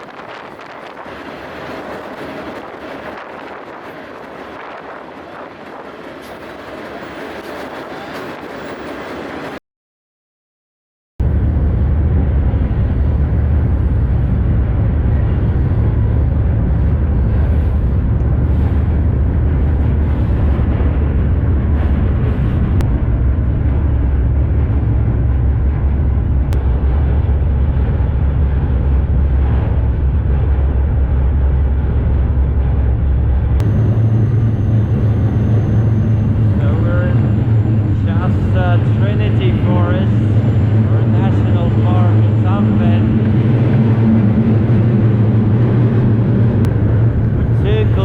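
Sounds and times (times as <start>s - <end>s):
freight train rumble: 0.0s - 9.6s, 11.2s - 48.0s.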